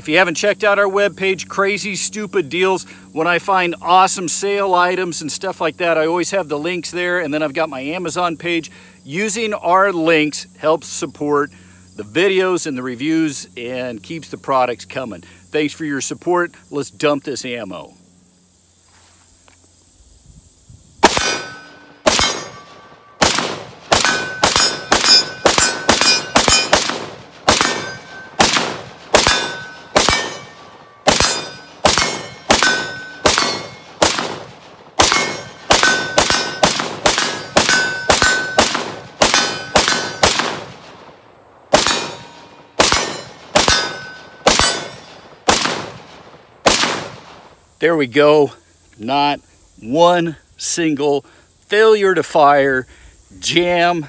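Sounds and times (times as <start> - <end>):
pistol gunshots: 21.0 - 47.4.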